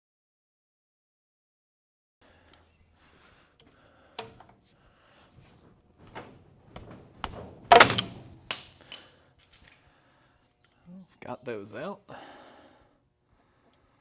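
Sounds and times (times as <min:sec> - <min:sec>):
metal tools knocking and clanking: 0:06.1 - 0:09.1.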